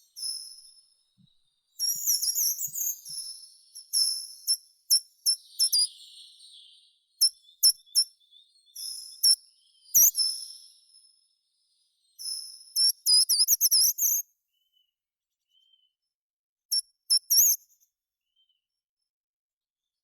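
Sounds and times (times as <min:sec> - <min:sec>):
songbird singing: 0:00.0 - 0:13.8.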